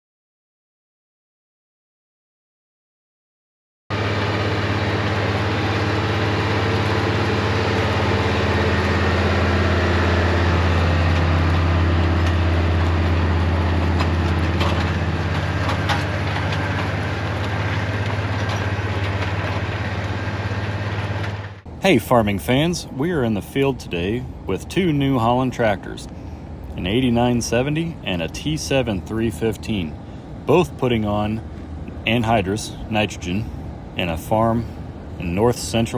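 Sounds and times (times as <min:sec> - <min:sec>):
large engine humming: 0:03.9 - 0:35.9.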